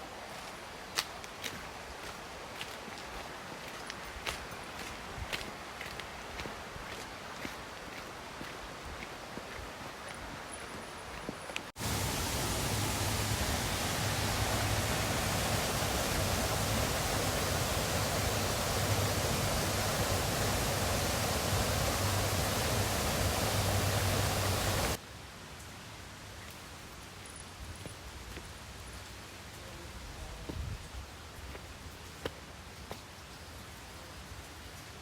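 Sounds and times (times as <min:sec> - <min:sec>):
waterfall rushing: 0:11.8 - 0:25.0.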